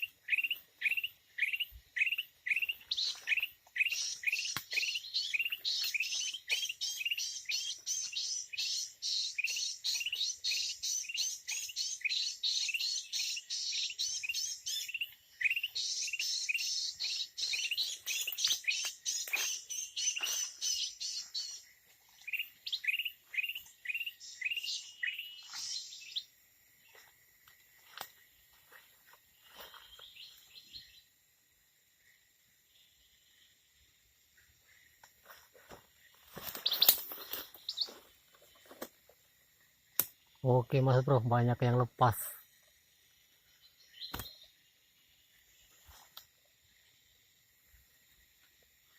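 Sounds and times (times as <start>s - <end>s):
bulbuls chirping: 0.0s - 26.3s, 36.2s - 38.8s.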